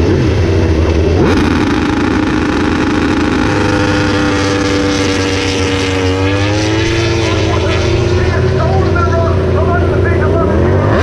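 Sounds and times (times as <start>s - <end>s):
racing motorcycle engines running: 0.0s - 11.0s.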